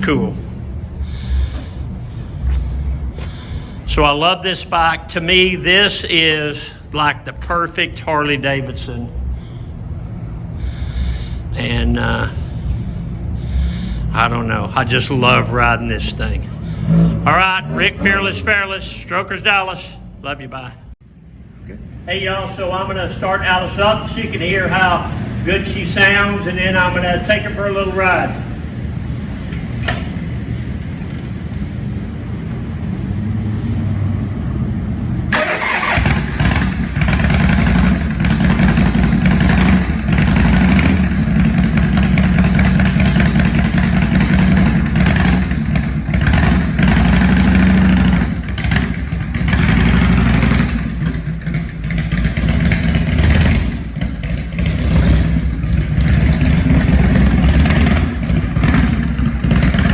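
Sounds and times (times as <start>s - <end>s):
motorcycle engine rumbling: 0.0s - 20.2s, 34.9s - 59.9s
motorcycle engine starting: 35.3s - 59.9s.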